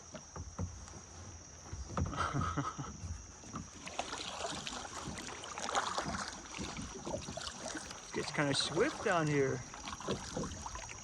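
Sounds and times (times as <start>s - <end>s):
paddle splashing in water: 0.0s - 11.0s
water drips: 3.5s - 11.0s.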